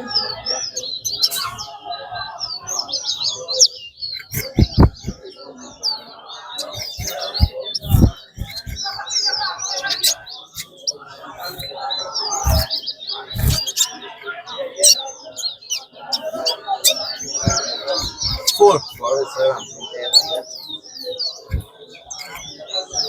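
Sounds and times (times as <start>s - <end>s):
songbirds twittering: 0.0s - 23.0s
low thumps: 4.2s - 5.2s, 6.6s - 8.8s, 17.4s - 18.6s.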